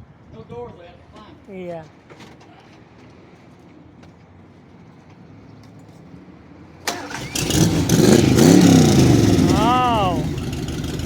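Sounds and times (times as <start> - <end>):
car engine starting: 6.8 - 11.0.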